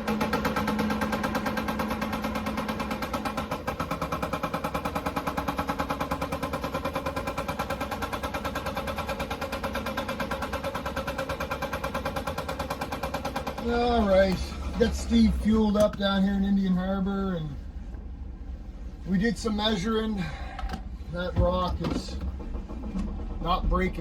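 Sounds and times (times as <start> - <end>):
hydraulic rock breaker pounding: 0.0 - 15.8, 21.2 - 24.0.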